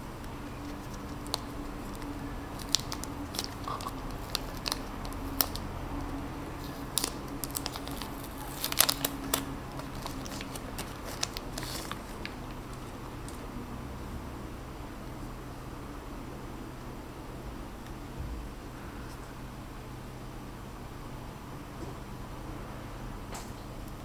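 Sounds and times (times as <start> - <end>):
steady low hum: 0.0 - 24.0
packaging crinkling and clicking: 0.2 - 13.4.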